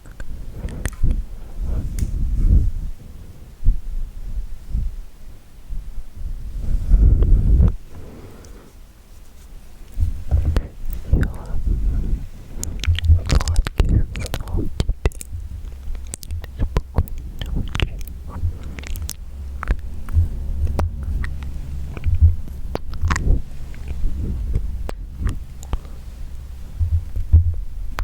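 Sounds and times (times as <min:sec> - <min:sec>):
low rumble: 0:00.0 - 0:28.0
wet mouth clicks and smacks: 0:09.9 - 0:12.0, 0:12.6 - 0:28.0.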